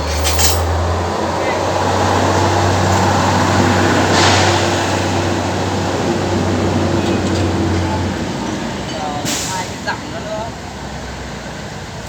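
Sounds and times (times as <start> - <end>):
short hiss: 9.3 - 9.7.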